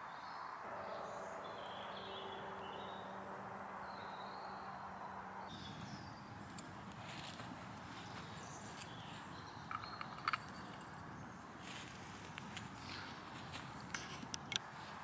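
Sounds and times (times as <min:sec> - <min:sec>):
low hum: 0:00.6 - 0:14.3
small birds chirping: 0:05.4 - 0:14.7.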